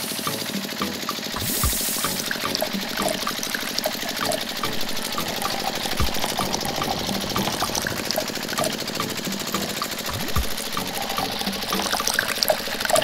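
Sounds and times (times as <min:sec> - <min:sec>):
small electric motor buzzing: 0:00.0 - 0:13.0.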